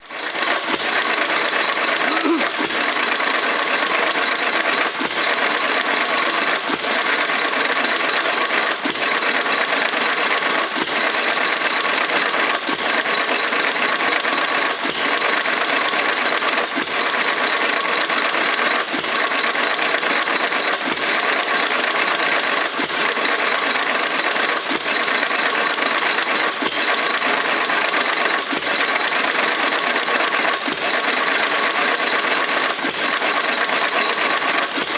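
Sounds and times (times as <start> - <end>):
hit-and-miss engine running: 0.0 - 34.9.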